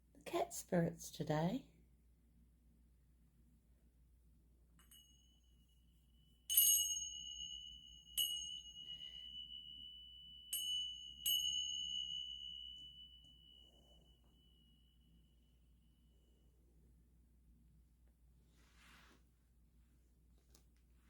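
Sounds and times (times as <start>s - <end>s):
small metal chime ringing: 4.8s - 16.2s.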